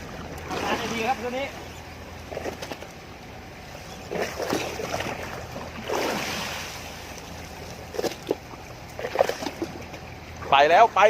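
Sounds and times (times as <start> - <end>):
boat engine running: 0.0 - 11.0
water washing along hull: 0.0 - 11.0.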